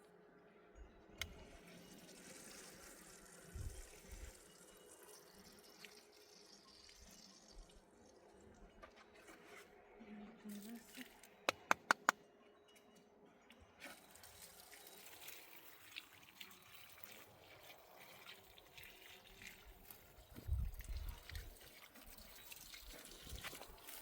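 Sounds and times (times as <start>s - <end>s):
water trickling and dripping: 1.2s - 9.2s, 13.5s - 24.0s
sharp clicks: 11.5s - 12.2s.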